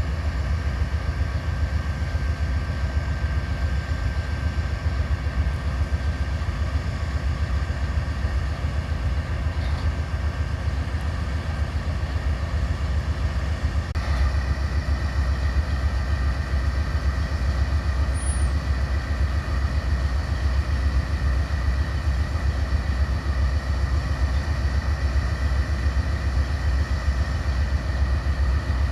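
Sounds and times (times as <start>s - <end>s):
diesel locomotive rumble: 0.0s - 28.9s
faint high whine: 14.1s - 25.7s.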